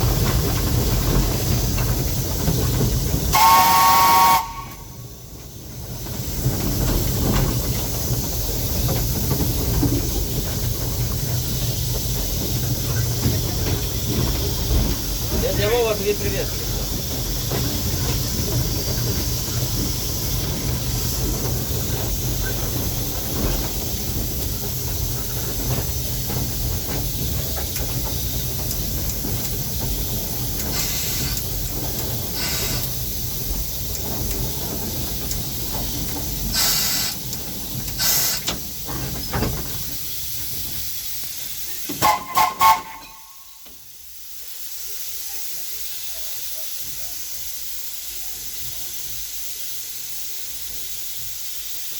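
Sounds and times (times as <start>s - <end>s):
locomotive wheels and machinery rumble: 0.0s - 51.9s
steam hissing: 0.0s - 51.9s
steam whistle toots: 3.3s - 5.1s, 42.0s - 43.7s.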